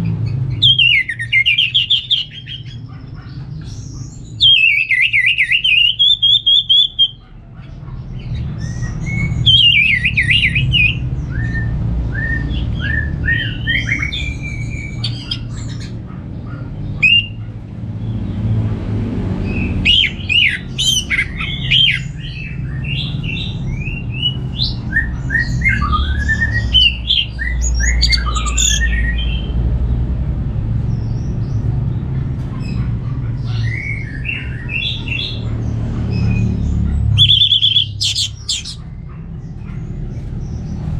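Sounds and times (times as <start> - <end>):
thrush singing: 8.2 - 40.1.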